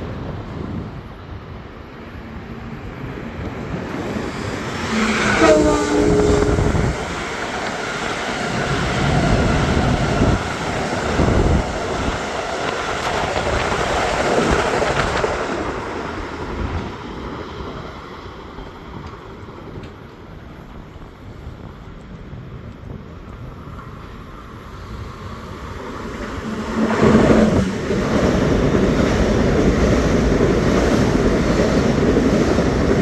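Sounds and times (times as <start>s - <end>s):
train wheels rumbling on rail: 0.0s - 33.0s
train horn blast: 4.8s - 7.5s.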